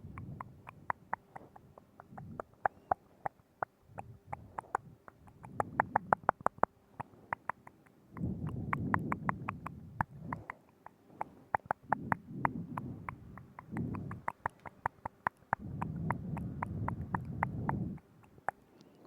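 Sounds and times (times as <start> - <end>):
wet tongue and lip clicks: 0.0 - 19.0.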